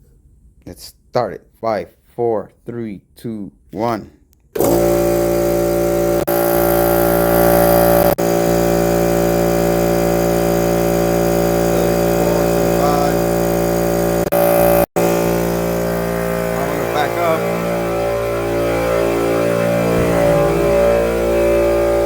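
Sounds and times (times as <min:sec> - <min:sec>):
air compressor running: 0:04.6 - 0:22.0.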